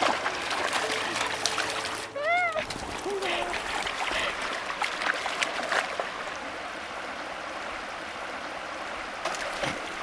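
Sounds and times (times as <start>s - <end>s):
small water splashes: 0.0s - 6.6s, 9.0s - 10.0s
stream flowing: 0.0s - 10.0s.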